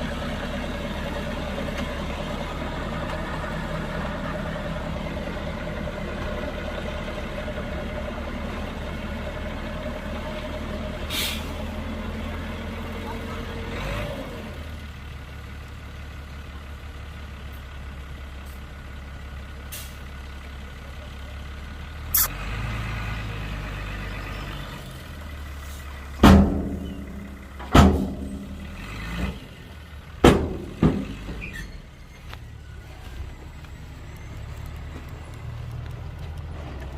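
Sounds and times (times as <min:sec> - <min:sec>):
diesel earthmoving machinery running: 0:00.0 - 0:36.9
short sharp hiss: 0:11.1 - 0:11.5
loud metallic bangs: 0:26.2 - 0:28.8, 0:30.2 - 0:31.4.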